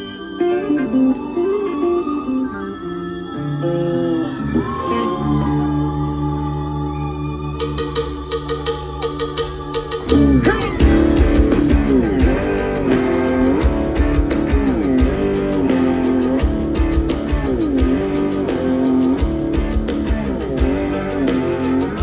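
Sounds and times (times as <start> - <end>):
lead guitar with string bends: 0.0 - 22.0
organ: 0.0 - 22.0
drums and bass: 7.6 - 22.0.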